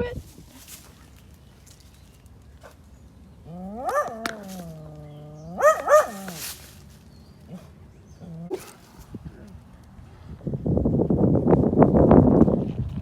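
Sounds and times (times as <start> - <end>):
dog whining howl and yips: 3.7 - 6.4.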